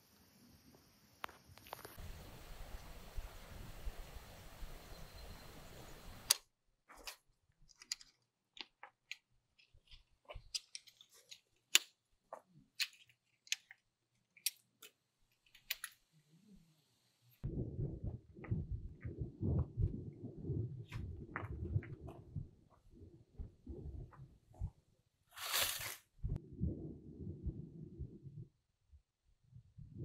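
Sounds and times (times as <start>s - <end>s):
outdoor background noise: 0.0s - 28.5s
small hard objects clicking: 7.0s - 16.0s.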